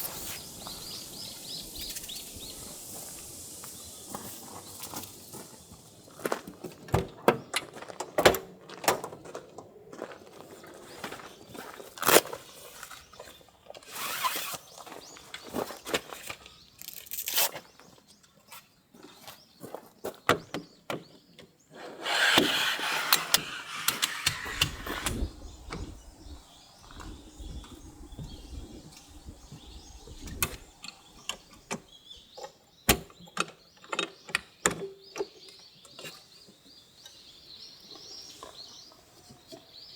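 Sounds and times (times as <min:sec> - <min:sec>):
rustling: 0:21.8 - 0:31.7
objects being handled clicking: 0:22.0 - 0:26.4.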